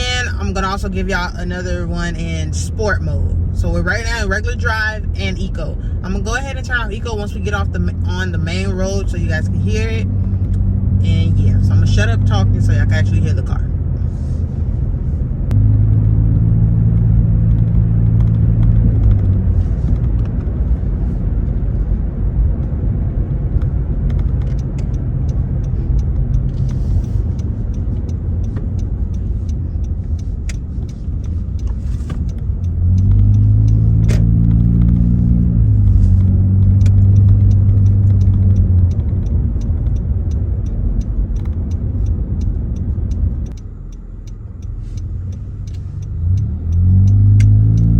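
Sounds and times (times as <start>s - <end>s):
car engine exhaust: 0.0s - 47.9s
road rumble: 0.0s - 47.9s.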